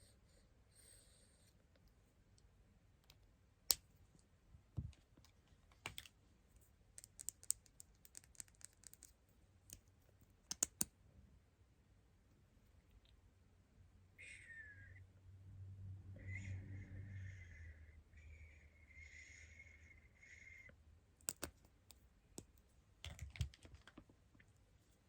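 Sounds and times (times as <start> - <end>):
clicks and taps of small tools: 21.2 - 24.0.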